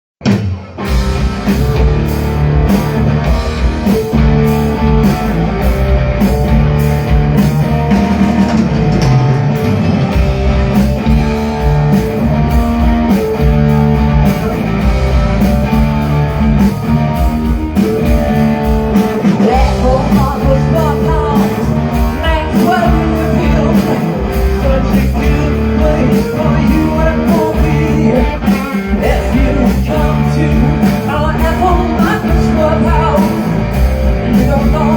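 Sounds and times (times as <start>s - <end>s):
rock band playing: 0.2s - 34.9s
person singing: 18.9s - 34.9s.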